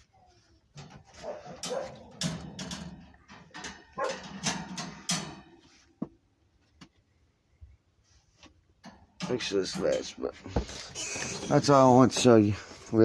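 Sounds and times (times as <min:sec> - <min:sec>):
dog barking and whimpering: 0:01.2 - 0:02.2, 0:03.9 - 0:04.4.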